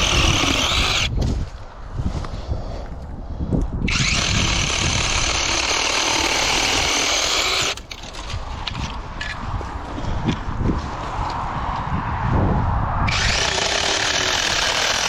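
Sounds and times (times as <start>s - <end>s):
mini chainsaw cutting branch: 0.0s - 1.2s, 3.9s - 8.4s, 13.1s - 15.0s.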